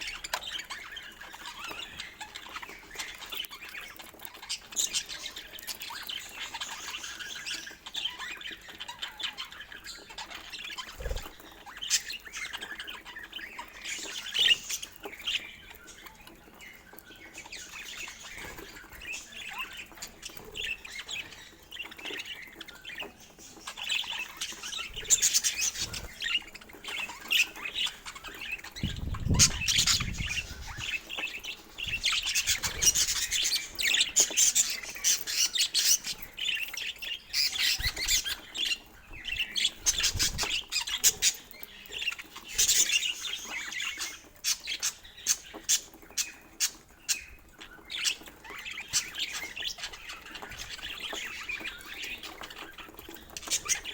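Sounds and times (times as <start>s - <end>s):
budgerigars chirping and chattering: 0.0s - 53.9s.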